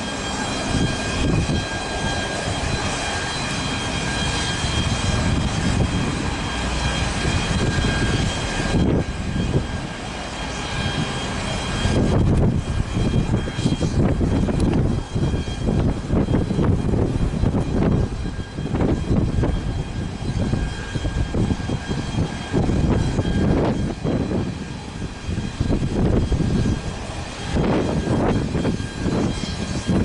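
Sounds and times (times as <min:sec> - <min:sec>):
airliner engines roaring: 0:00.0 - 0:30.0
high engine whine: 0:00.0 - 0:30.0.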